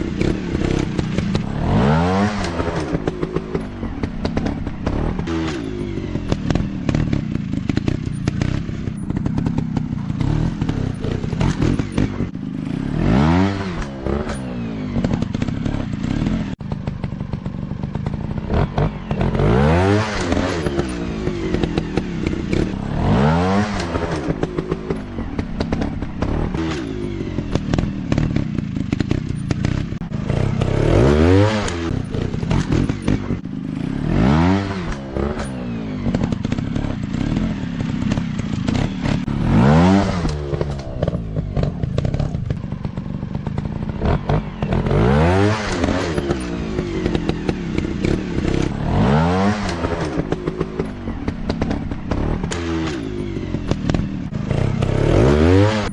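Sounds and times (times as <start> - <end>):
dirt bike engines revving: 0.0 - 55.9.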